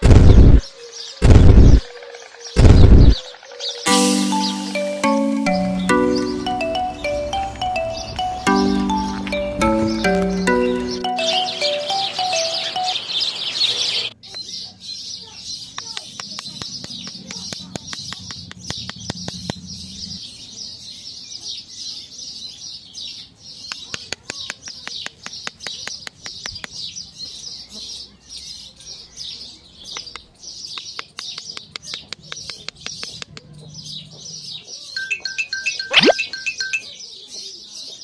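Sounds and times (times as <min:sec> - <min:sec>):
small birds chirping: 0:00.0 - 0:38.0
sharp clicks and taps: 0:10.0 - 0:10.8, 0:15.7 - 0:19.6, 0:23.7 - 0:26.8, 0:29.9 - 0:33.5.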